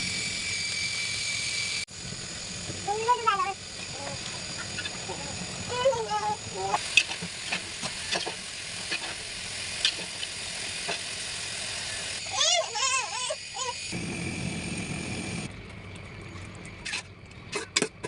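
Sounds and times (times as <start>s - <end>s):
food sizzling in a frying pan: 5.8s - 12.2s.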